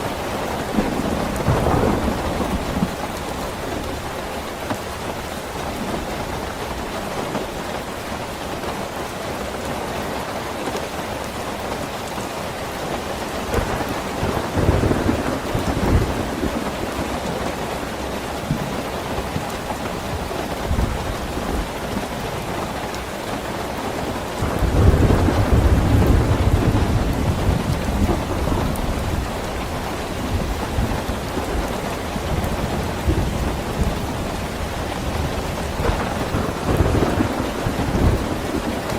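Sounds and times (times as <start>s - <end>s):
heavy rain falling: 0.0s - 38.9s
thunder rolling: 0.1s - 4.2s, 13.4s - 18.8s, 24.3s - 38.9s.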